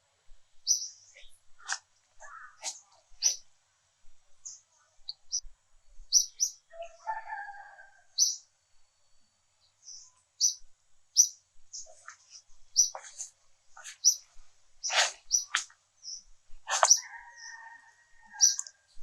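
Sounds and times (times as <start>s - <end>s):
birds chirping: 0.6s - 3.4s, 4.4s - 5.5s, 6.1s - 7.1s, 8.2s - 8.4s, 9.6s - 18.8s.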